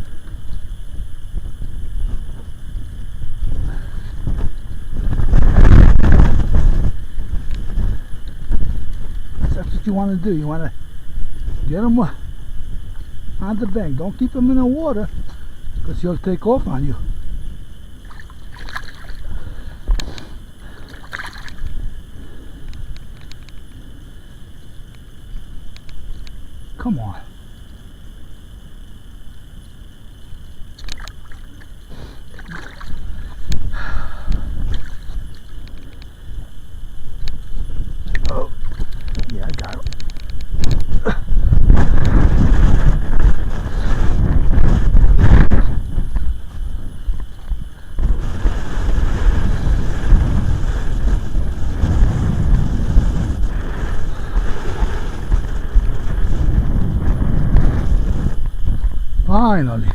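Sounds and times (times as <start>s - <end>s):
low wind rumble on microphone: 0.0s - 59.9s
water splashing and sloshing: 17.9s - 23.7s, 30.5s - 36.6s, 37.4s - 40.6s
sharp clicks: 22.6s - 23.8s, 24.6s - 26.4s, 30.8s - 31.3s, 35.4s - 36.2s, 37.2s - 40.9s.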